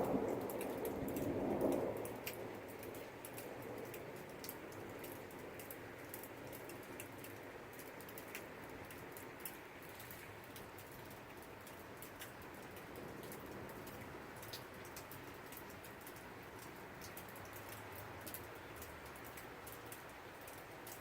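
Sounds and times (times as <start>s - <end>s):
thunder rumble: 0.0s - 3.2s
rain falling: 0.0s - 21.0s.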